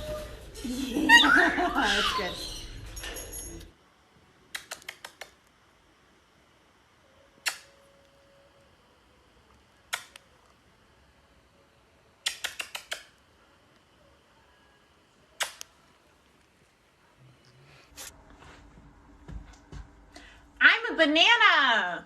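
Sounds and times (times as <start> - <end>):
sharp clicks: 4.5 - 5.4, 12.2 - 13.1, 15.4 - 15.7.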